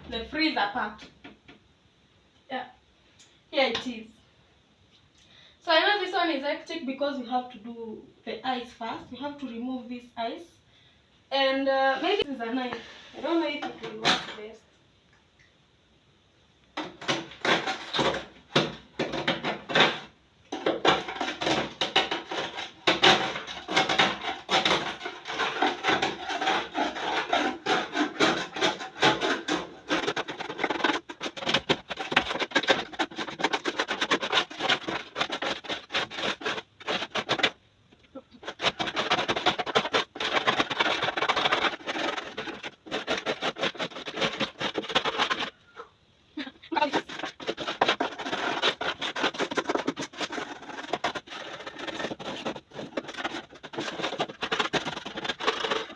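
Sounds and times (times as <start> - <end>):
knife scraping ice: 16.8 - 37.6, 38.4 - 45.6, 46.7 - 55.9.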